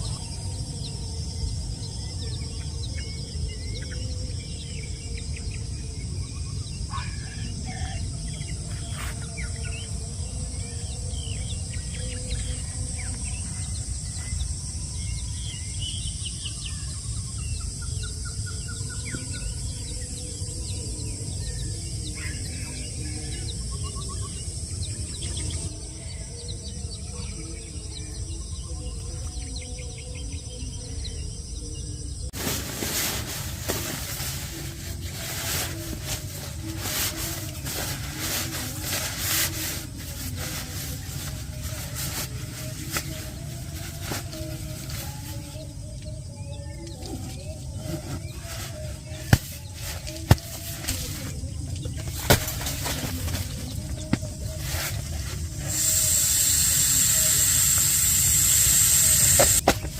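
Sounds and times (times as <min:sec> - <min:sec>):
insect drone: 0:00.0 - 0:59.9
small birds chirping: 0:00.0 - 0:59.9.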